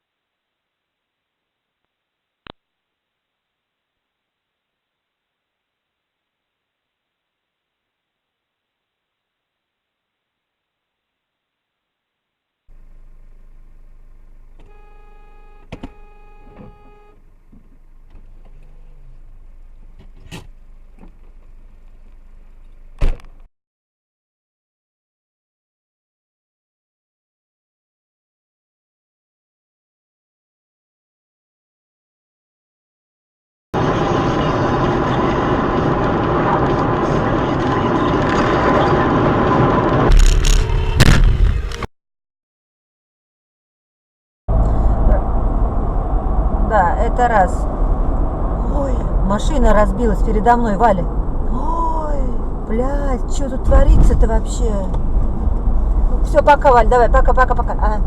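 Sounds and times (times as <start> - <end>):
car interior hum: 12.7 - 23.4, 44.5 - 58.0
vehicle road and engine noise: 12.7 - 23.5, 33.8 - 41.9, 44.5 - 58.0
electronic beep: 14.7 - 17.2
sharp knock: 40.1 - 41.8.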